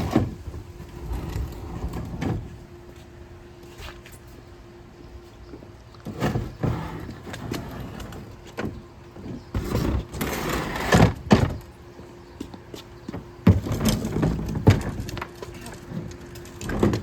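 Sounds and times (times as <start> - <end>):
trash can wheels rumbling: 0.0 - 2.8, 5.6 - 12.3, 13.0 - 17.0.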